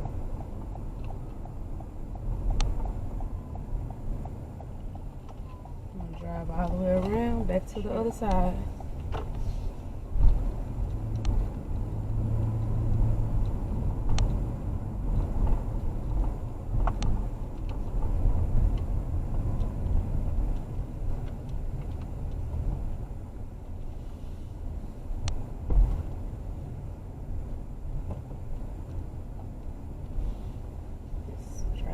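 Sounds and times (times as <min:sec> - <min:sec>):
sharp clicks and knocks: 0:00.0 - 0:09.5, 0:10.1 - 0:23.8
car engine and tyre rumble: 0:00.0 - 0:31.9.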